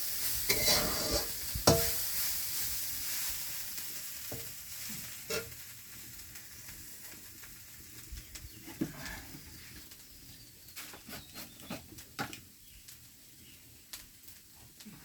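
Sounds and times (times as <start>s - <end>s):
food sizzling in a pan: 0.0s - 10.6s.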